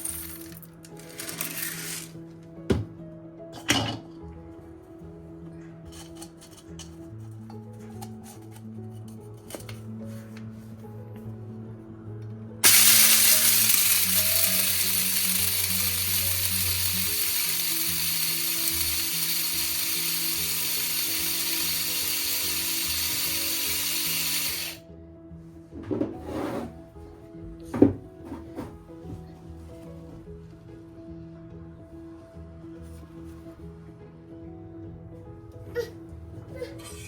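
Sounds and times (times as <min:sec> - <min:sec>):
appliance motor whirring: 0:00.0 - 0:02.1, 0:12.6 - 0:24.8.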